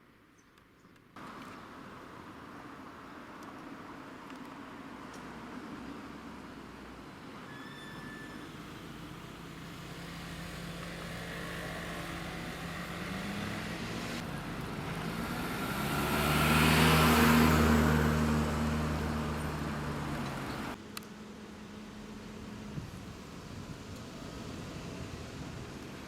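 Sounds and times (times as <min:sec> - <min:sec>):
motor vehicle passing: 0:08.4 - 0:26.0.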